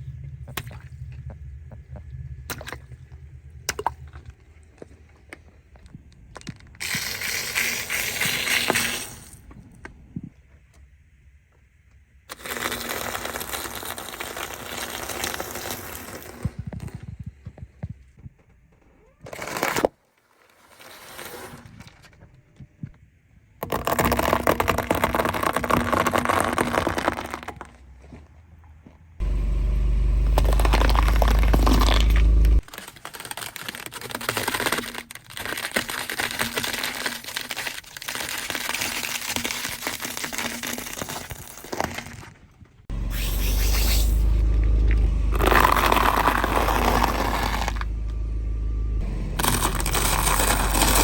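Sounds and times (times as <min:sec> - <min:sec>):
strong low rumble: 0:00.0 - 0:06.8, 0:29.2 - 0:32.7, 0:42.9 - 0:51.0
crackling and crunching crushing: 0:00.2 - 0:10.4, 0:12.3 - 0:23.0, 0:23.6 - 0:47.9, 0:49.0 - 0:51.0.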